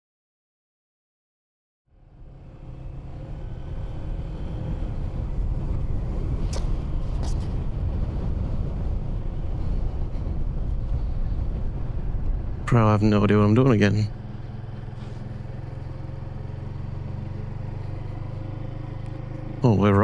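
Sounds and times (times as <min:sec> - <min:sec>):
motorcycle engine running: 0:02.0 - 0:20.0
wind noise on microphone: 0:04.7 - 0:13.5.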